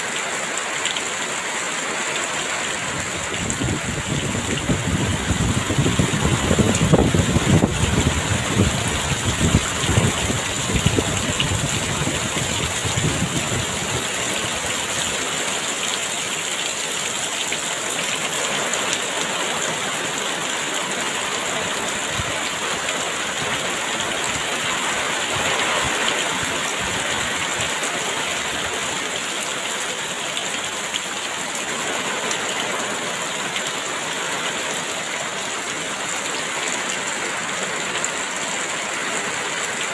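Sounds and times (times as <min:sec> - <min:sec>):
heavy rain pouring: 0:00.0 - 0:39.9
gusty wind rumble: 0:02.8 - 0:14.7.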